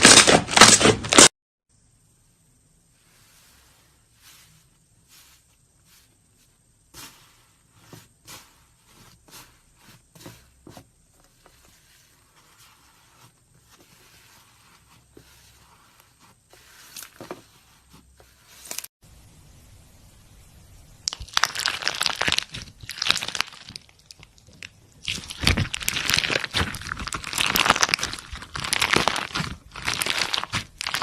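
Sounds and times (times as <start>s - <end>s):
slime squeezed with sticky pops: 21.0s - 31.0s.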